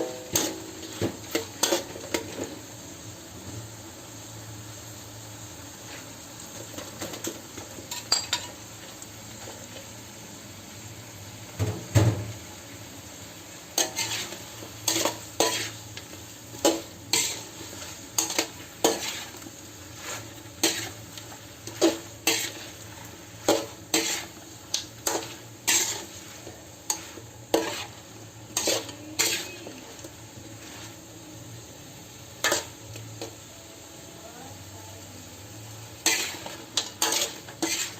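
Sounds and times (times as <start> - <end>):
utensil scraping and clanking on pan: 0.0 - 2.6, 5.8 - 9.8, 13.7 - 31.1, 32.4 - 33.4, 35.9 - 37.9
food sizzling in a pan: 0.0 - 37.9.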